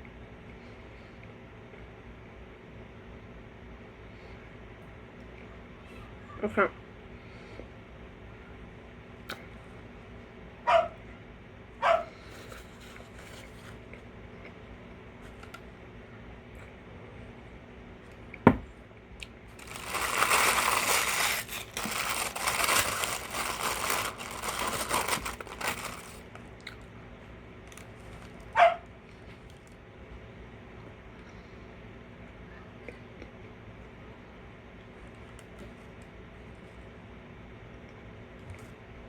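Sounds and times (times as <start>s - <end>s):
dog barking: 10.6s - 11.0s, 11.8s - 12.2s, 28.5s - 28.9s
paper wrappers crinkling: 19.5s - 26.4s.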